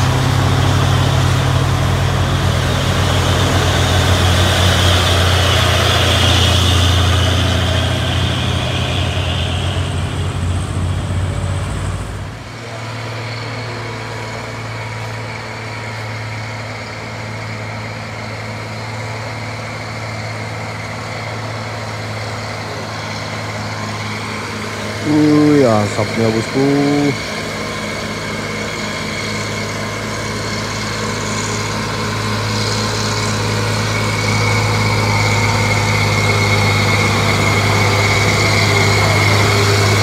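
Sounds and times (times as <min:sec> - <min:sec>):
heavy truck engine running: 0:00.0 - 0:40.0.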